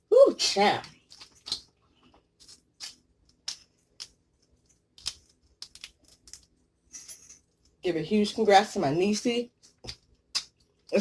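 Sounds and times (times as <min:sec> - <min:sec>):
shells cracking and snapping: 0:00.8 - 0:06.6, 0:09.6 - 0:11.0.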